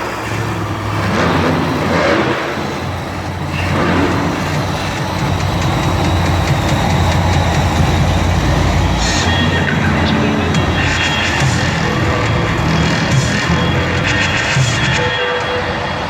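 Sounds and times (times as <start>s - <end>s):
monster truck engine rumbling: 0.0s - 16.0s.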